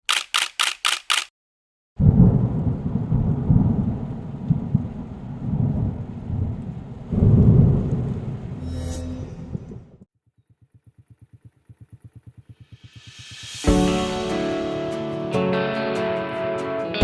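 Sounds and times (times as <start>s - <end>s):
quick hissing pulses: 0.0s - 1.3s
thunder rumbling: 2.0s - 8.6s.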